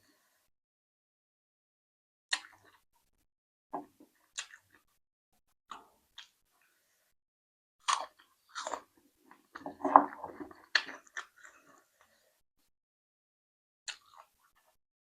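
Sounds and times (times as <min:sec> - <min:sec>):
person biting and chewing: 0:07.8 - 0:11.7, 0:13.9 - 0:14.3.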